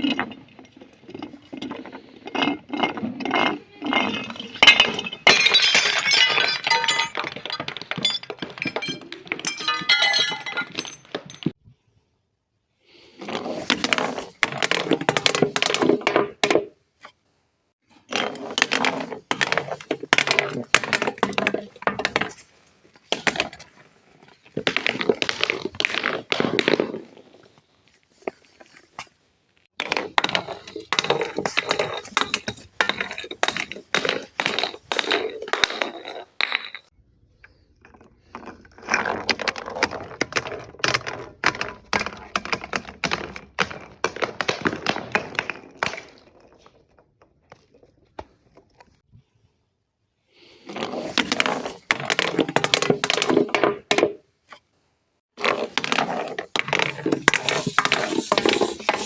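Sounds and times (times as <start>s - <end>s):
objects crackling and crunching: 55.4s - 59.0s.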